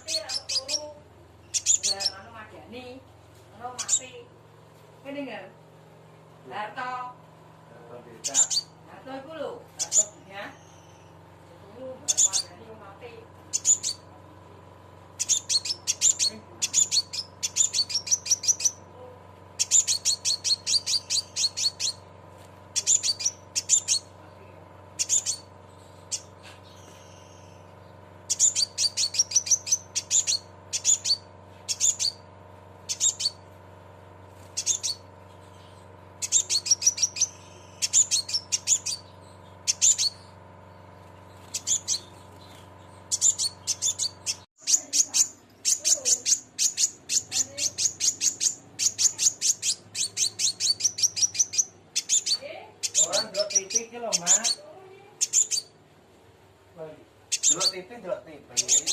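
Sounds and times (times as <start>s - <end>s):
bird giving sharp chirps: 0.0s - 2.5s, 3.6s - 4.3s, 8.2s - 8.8s, 9.7s - 11.2s, 11.9s - 12.6s, 13.4s - 14.1s, 15.2s - 18.9s, 19.6s - 22.1s, 22.7s - 24.2s, 24.9s - 33.5s, 34.3s - 55.8s, 57.2s - 58.9s
steady low hum: 0.0s - 58.9s.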